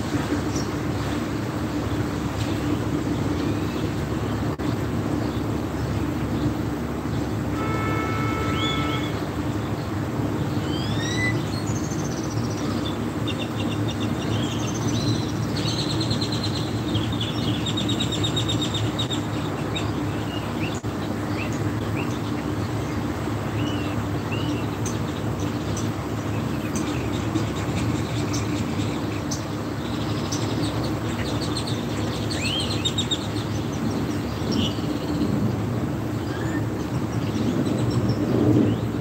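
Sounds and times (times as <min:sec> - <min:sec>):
birds chirping and trilling: 0:00.0 - 0:39.0.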